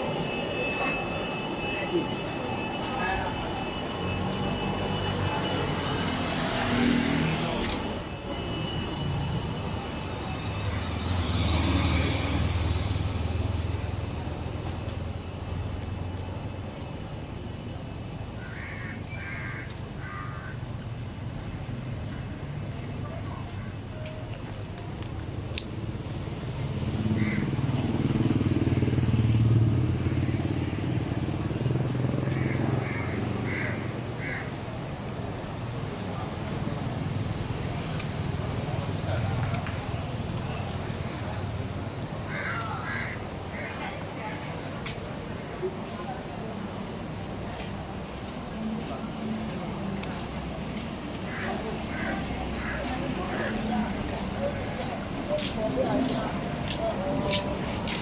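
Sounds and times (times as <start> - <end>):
vehicles passing on road: 0.0 - 58.0
motorbike engine passing: 26.5 - 33.5.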